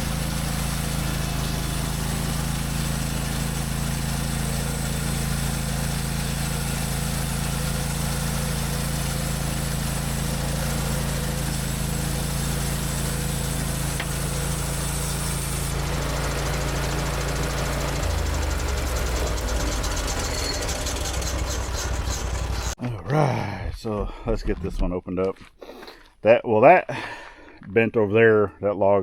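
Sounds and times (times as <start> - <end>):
engine running steadily: 0.0 - 22.8.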